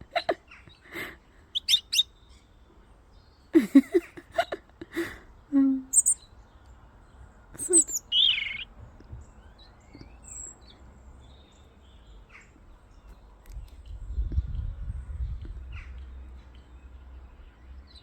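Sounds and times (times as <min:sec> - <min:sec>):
small bird chirping: 0:01.5 - 0:02.6, 0:05.9 - 0:06.8, 0:07.6 - 0:18.0.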